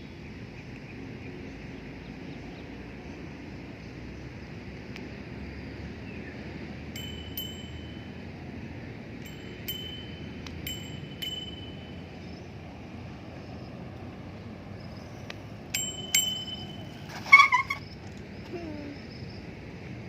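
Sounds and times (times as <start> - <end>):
steady low rumble: 6.8 - 17.2
bicycle bell dinging: 7.0 - 8.4, 9.1 - 12.5, 15.7 - 17.8.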